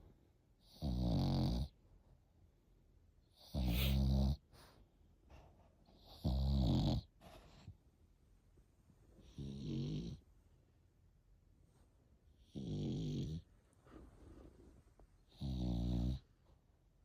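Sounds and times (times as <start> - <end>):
puppy snoring: 0.6 - 1.8, 3.3 - 4.4, 6.0 - 7.2, 9.2 - 10.2, 12.4 - 13.5, 15.3 - 16.3.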